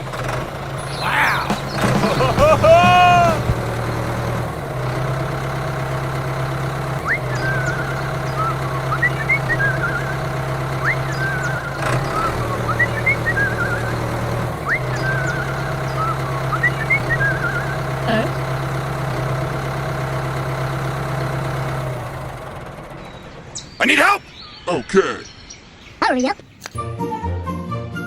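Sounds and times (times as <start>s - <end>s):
tractor engine idling: 0.0s - 24.6s
high chirping warble: 0.8s - 4.6s, 5.2s - 18.6s, 23.0s - 27.0s.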